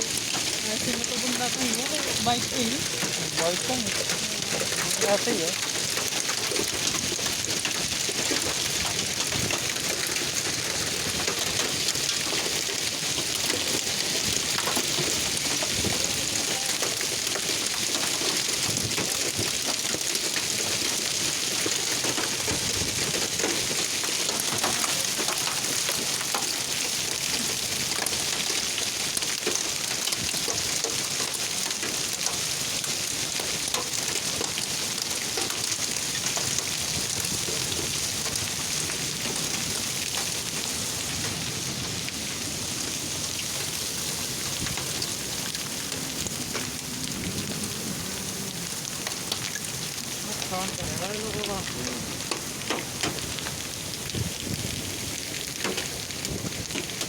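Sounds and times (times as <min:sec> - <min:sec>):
hail and heavy rain: 0:00.0 - 0:57.0.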